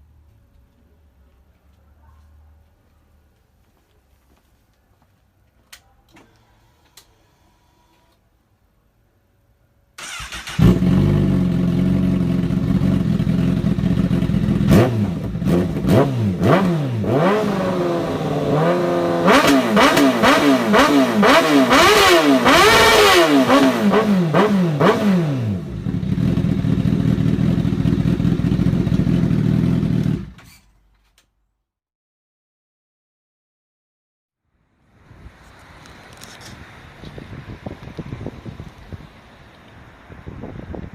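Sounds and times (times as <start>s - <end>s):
motorcycle engine revving: 10.0s - 30.4s.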